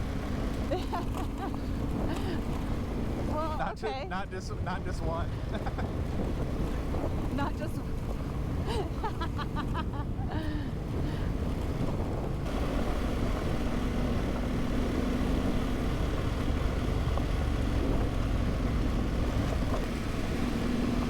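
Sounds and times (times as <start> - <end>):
wind buffeting microphone: 4.4 - 21.0
motorcycle engine running: 11.6 - 21.0.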